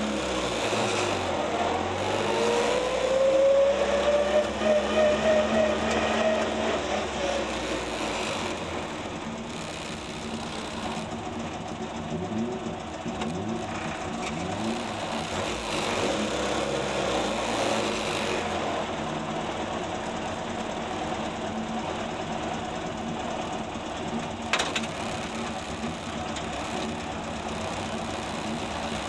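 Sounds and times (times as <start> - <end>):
car engine idling: 5.9 - 29.0.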